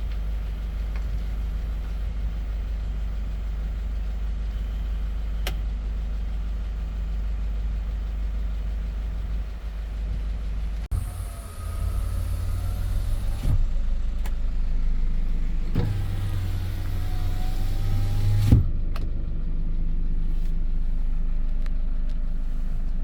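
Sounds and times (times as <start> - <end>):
diesel engine idling: 0.0 - 23.0
electric window motor whining: 10.9 - 14.8, 15.6 - 18.8.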